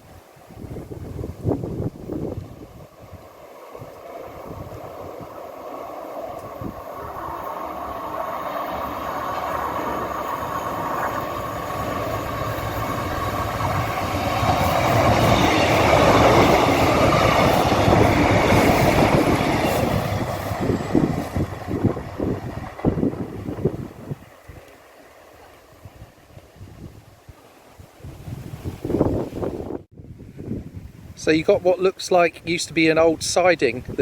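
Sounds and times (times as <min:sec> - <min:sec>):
diesel train rumble: 0:01.3 - 0:26.2
train wheels on rails: 0:01.4 - 0:26.6.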